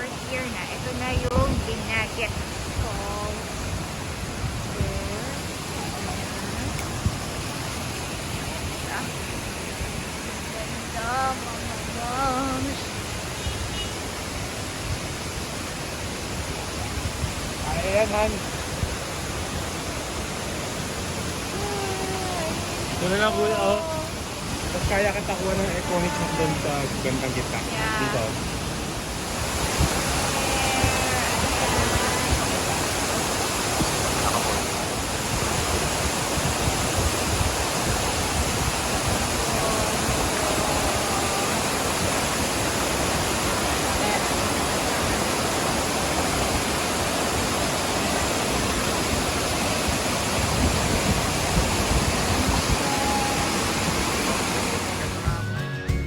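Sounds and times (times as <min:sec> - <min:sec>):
waterfall rushing: 0:00.0 - 0:55.6
faint voices: 0:21.4 - 0:28.6, 0:29.4 - 0:33.1, 0:33.8 - 0:35.0, 0:39.0 - 0:45.6, 0:52.0 - 0:55.4.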